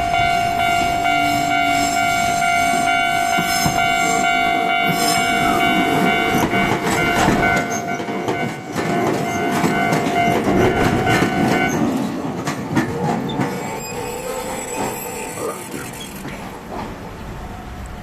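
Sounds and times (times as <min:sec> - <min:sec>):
steady high tone: 0:00.0 - 0:11.8
train wheels clicking on rails: 0:00.0 - 0:18.0.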